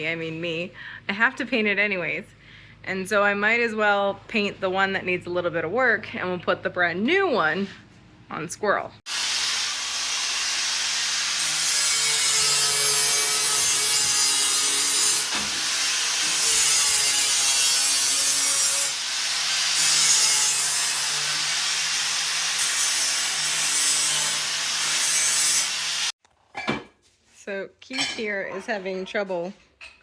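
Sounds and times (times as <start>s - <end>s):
abrasive sanding rasp: 9.2s - 26.1s.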